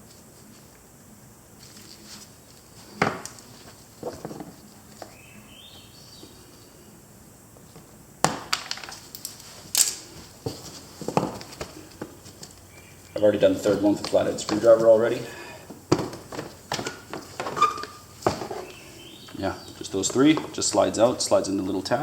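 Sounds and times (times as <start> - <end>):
plastic squeak: 17.4 - 18.7.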